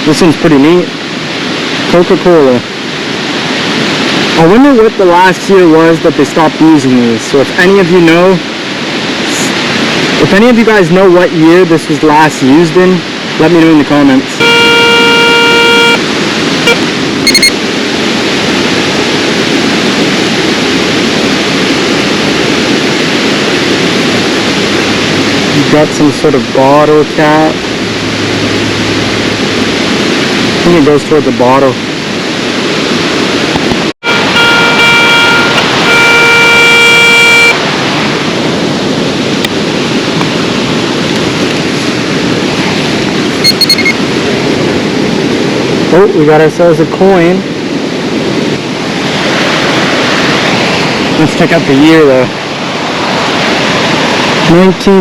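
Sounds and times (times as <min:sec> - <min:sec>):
waterfall rushing: 0:00.0 - 0:55.0
high-pitched beeps: 0:14.4 - 0:16.0, 0:16.6 - 0:17.6, 0:34.0 - 0:37.6, 0:43.4 - 0:44.0
metal detector low tone: 0:14.4 - 0:16.0, 0:16.6 - 0:17.6, 0:34.0 - 0:37.6, 0:43.4 - 0:44.0.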